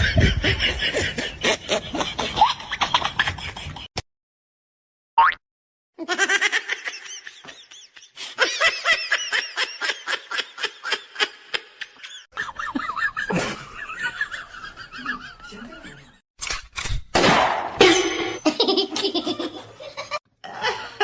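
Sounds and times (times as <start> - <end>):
person laughing hard: 0.0 - 3.9, 6.0 - 15.4, 17.8 - 21.0.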